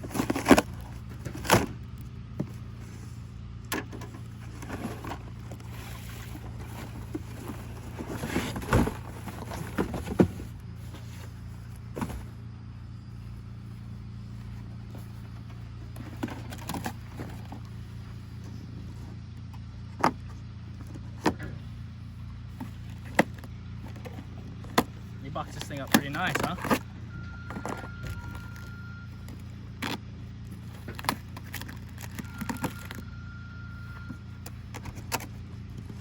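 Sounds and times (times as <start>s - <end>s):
cardboard packaging being handled: 0.0s - 1.8s, 4.3s - 12.3s, 27.5s - 33.1s
steady low hum: 0.0s - 36.0s.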